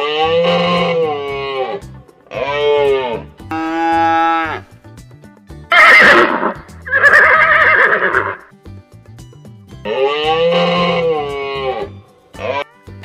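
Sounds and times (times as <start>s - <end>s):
background music: 0.0s - 13.0s
short steady animal call: 5.7s - 8.4s
horse whinnying: 5.7s - 8.5s, 9.9s - 12.7s.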